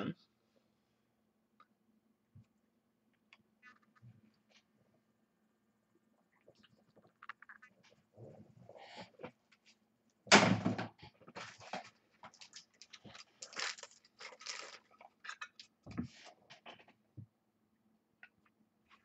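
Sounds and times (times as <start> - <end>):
thump: 10.3 - 10.9
cards and packaging rustling: 11.4 - 15.8.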